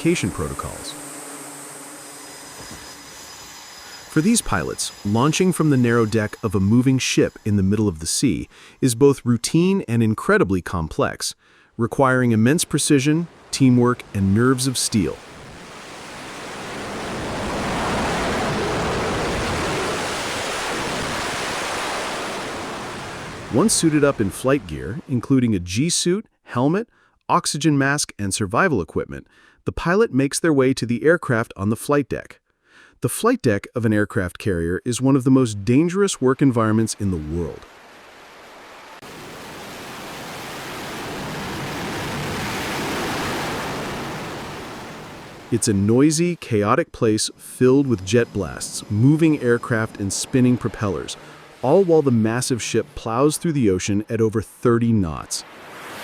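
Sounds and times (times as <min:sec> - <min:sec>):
jet engine roar: 0:00.0 - 0:07.4, 0:13.0 - 0:24.6.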